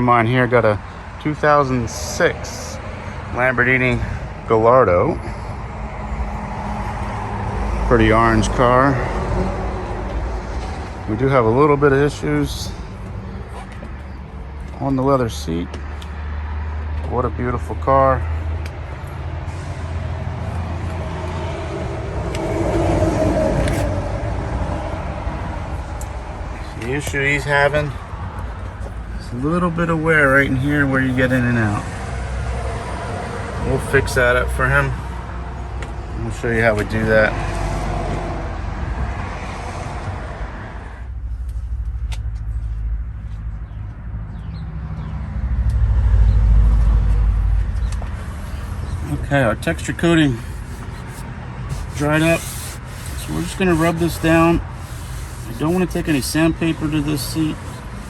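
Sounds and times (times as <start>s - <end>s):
vehicle engine rumbling: 0.0s - 58.0s
vehicle engine running: 41.1s - 58.0s.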